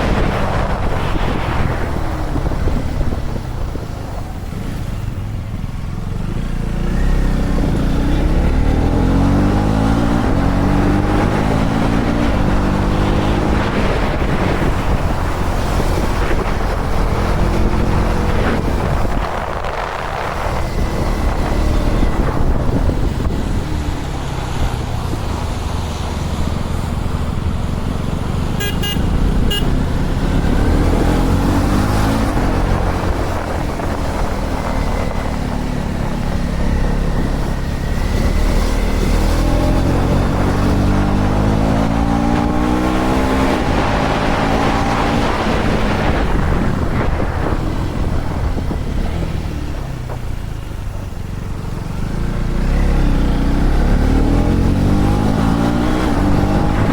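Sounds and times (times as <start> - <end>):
motorcycle engine accelerating: 0.0 - 56.9
short horn toots: 28.6 - 29.8.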